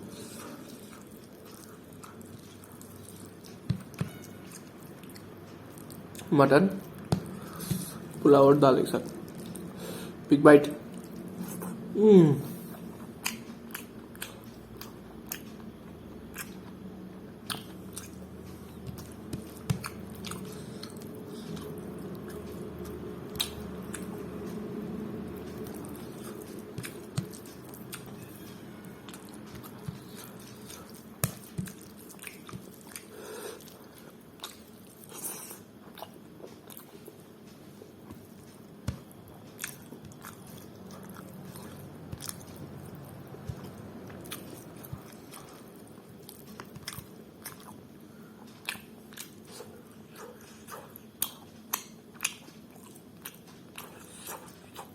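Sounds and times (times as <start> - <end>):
wet chewing and smacking: 0.4 - 8.2, 9.0 - 9.7, 12.8 - 16.8, 17.4 - 54.9.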